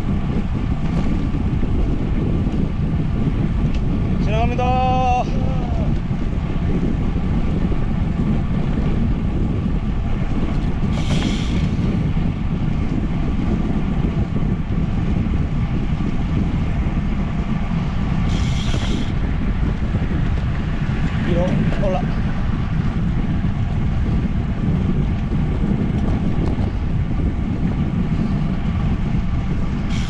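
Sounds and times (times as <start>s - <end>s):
bicycle rolling noise: 0.0s - 30.0s
wind buffeting microphone: 0.0s - 30.0s.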